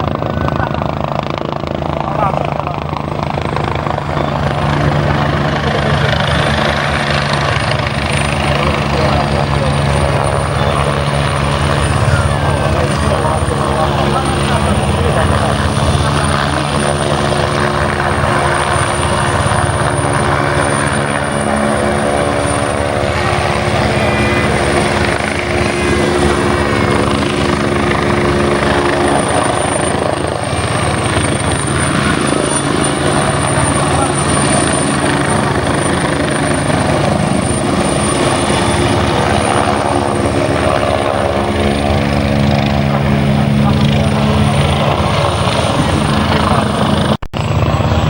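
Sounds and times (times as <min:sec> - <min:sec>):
helicopter rotor and engine hum: 0:00.0 - 0:48.0
thin high whine: 0:20.6 - 0:29.6.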